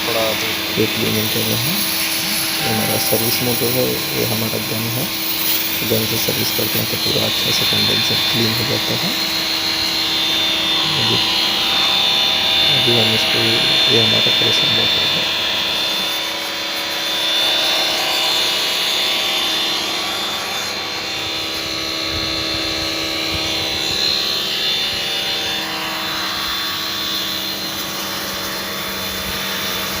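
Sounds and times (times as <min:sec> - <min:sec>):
pressure washer motor humming: 0:00.0 - 0:16.8
water hissing from spray gun: 0:00.1 - 0:09.6.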